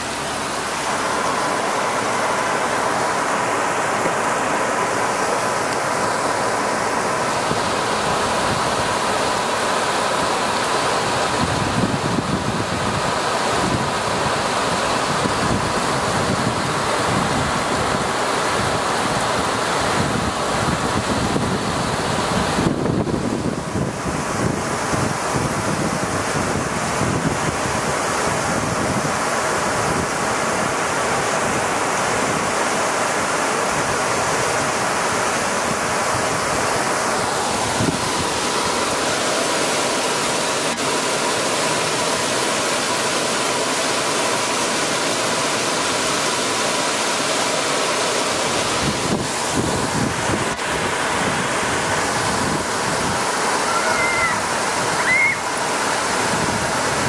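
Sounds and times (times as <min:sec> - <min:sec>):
heavy rain pouring on pavement: 0:00.0 - 0:57.0.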